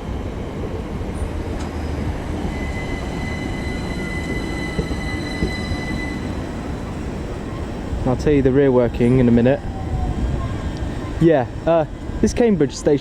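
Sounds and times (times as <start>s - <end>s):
train low rumble: 0.0s - 13.0s
high steady squeal: 1.2s - 8.4s.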